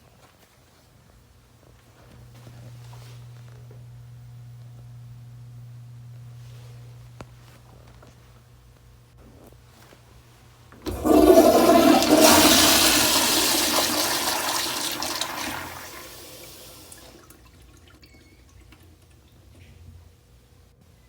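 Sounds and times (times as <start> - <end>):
toilet flushing: 10.8 - 19.4.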